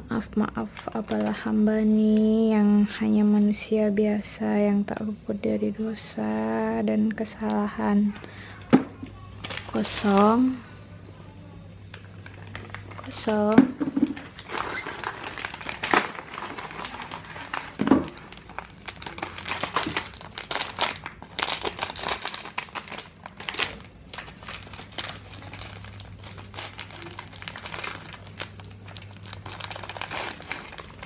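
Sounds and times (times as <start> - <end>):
plastic wrappers crinkling: 8.0 - 10.6, 11.9 - 31.0.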